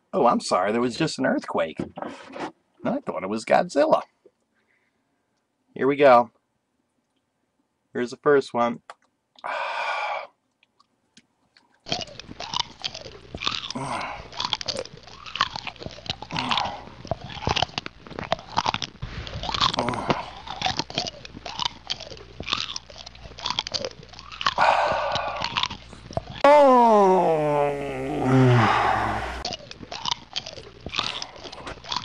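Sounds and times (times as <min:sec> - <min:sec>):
wet chewing and crunching: 0:10.5 - 0:26.5, 0:28.2 - 0:32.0.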